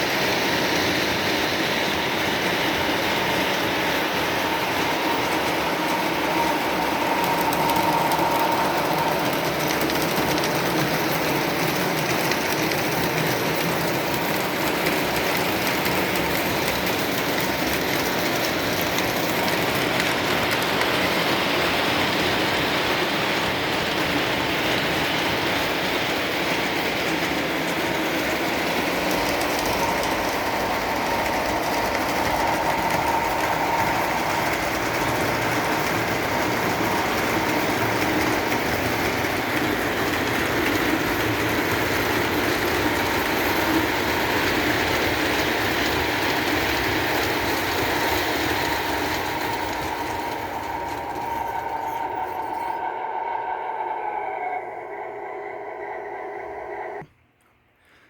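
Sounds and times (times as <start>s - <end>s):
toy train wheels clattering: 0.0s - 52.8s
toy train motor running: 0.2s - 52.8s
thin steady whine: 2.2s - 11.4s, 25.9s - 57.1s.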